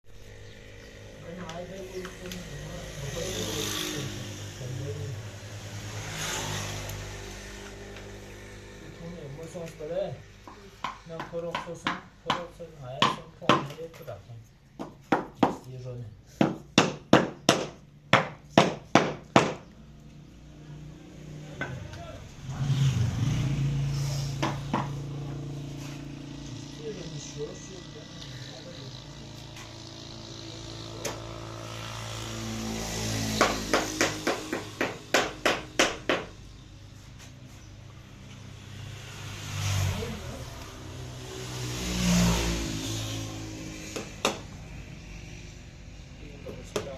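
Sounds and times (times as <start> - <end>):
tool knocking on wood: 10.5 - 14.0, 14.8 - 15.7, 16.4 - 19.7, 24.4 - 25.0, 33.4 - 36.4, 43.9 - 44.4, 46.7 - 46.9.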